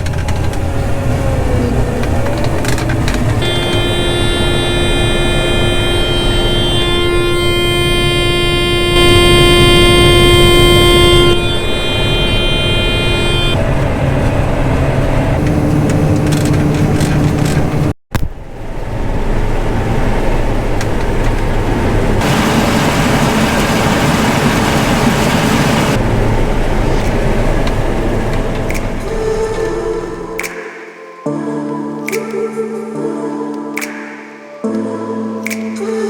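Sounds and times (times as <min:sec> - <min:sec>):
combine harvester running: 0:00.0 - 0:17.9, 0:18.5 - 0:30.2
steady tones: 0:00.0 - 0:17.9.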